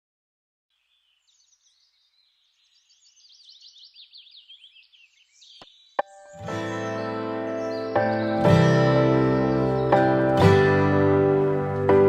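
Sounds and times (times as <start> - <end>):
songbird chirping: 0.7 - 12.0
strummed guitar music: 6.1 - 12.0.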